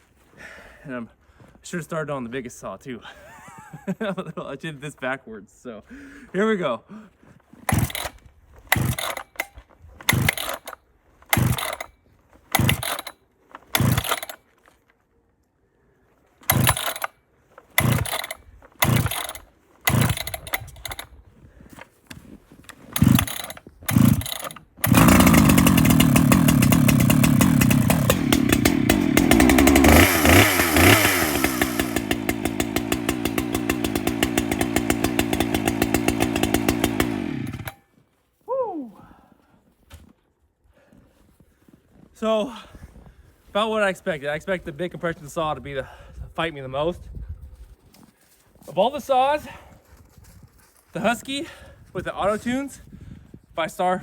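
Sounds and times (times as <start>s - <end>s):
chainsaw starter cord pulls: 7.6s - 14.9s, 16.4s - 37.8s
chainsaw engine running and revving: 7.7s - 8.1s, 8.7s - 9.3s, 10.1s - 10.7s, 11.3s - 11.9s, 12.6s - 13.1s, 13.7s - 14.4s, 16.5s - 17.1s, 17.8s - 21.0s, 22.9s - 37.8s.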